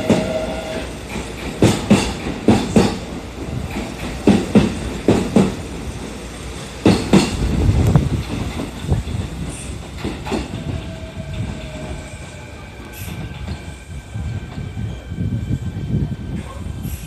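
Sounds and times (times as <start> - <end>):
train rumbling along track: 0.0 - 17.0
wheels clicking over rail joints: 6.8 - 13.7.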